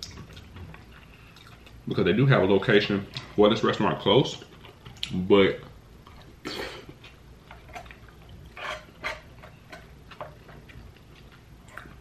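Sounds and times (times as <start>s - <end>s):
wet chewing smacks: 0.0s - 1.8s.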